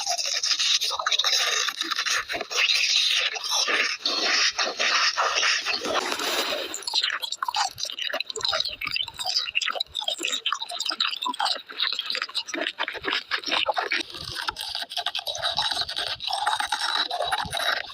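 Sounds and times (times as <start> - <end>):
chewing and crunching: 0.0 - 17.9
quick crackles: 5.8 - 6.9.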